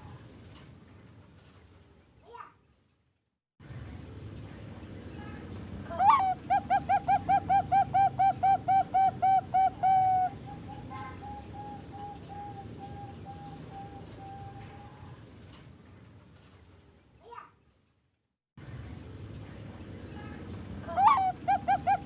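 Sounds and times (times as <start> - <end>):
dove cooing: 5.9 - 15.1, 20.9 - 22.0.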